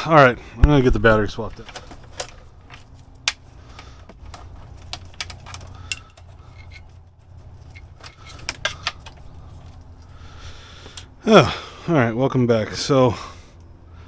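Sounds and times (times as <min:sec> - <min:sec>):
low steady hum: 0:00.0 - 0:14.0
metallic clicks and clinks: 0:01.6 - 0:09.7.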